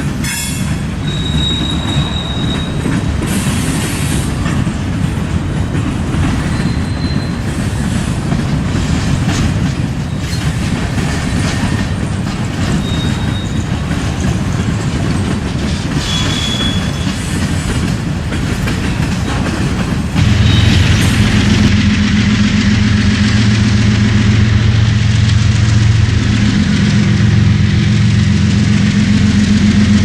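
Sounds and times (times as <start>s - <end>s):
train wheels rumbling on rails: 0.0s - 30.0s
high wheel squeals: 0.2s - 4.4s, 6.3s - 8.2s, 12.6s - 13.8s, 16.0s - 17.5s, 20.3s - 21.1s.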